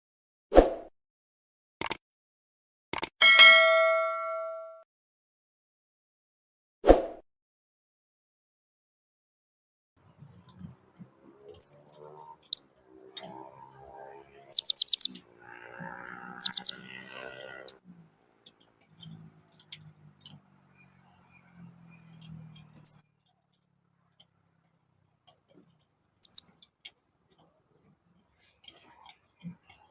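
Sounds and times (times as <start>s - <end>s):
parrots chirping high: 14.4s - 15.2s, 16.2s - 17.0s, 19.0s - 19.3s, 26.2s - 26.5s.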